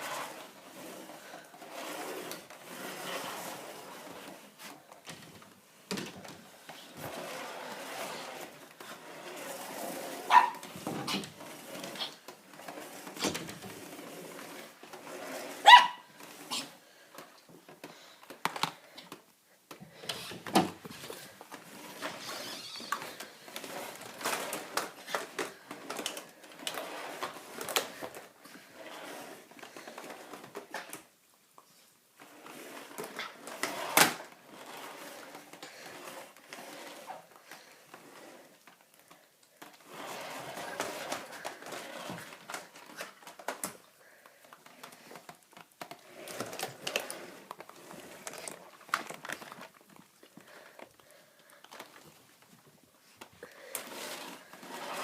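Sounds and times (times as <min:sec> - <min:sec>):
dog barking: 0:10.3 - 0:10.6, 0:15.6 - 0:16.0.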